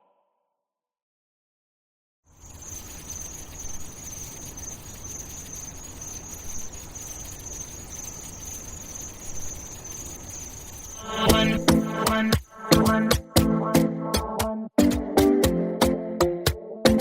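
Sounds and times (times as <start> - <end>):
crickets chirping: 2.3 - 13.1.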